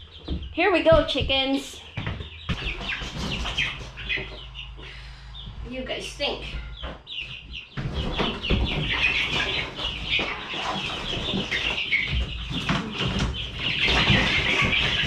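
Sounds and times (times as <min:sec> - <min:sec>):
chicks peeping: 0:00.0 - 0:15.0
knocks from handling chicks: 0:00.2 - 0:04.6, 0:06.5 - 0:15.0.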